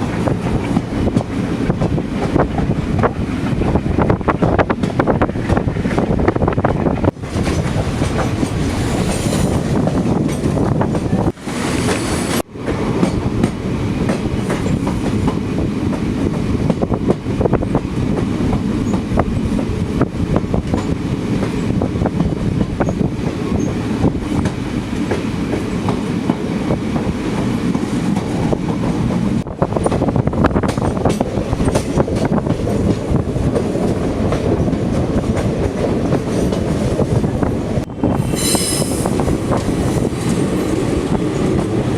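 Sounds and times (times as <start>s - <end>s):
train rumbling on track: 0.0s - 41.9s
wheels clicking over rail joints: 20.6s - 37.2s.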